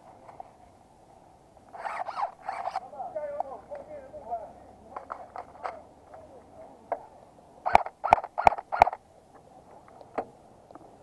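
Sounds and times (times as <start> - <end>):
faint clicks and rustles: 0.0 - 0.9, 4.8 - 11.0
airsoft gun shots: 7.7 - 9.0.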